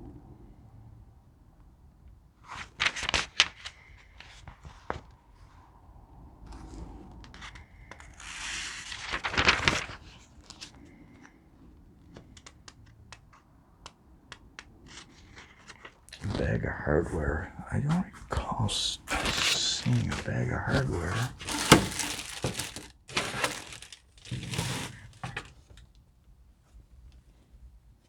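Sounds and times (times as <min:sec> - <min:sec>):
packaging crinkling: 0:19.0 - 0:25.8
packaging tearing: 0:19.1 - 0:25.6.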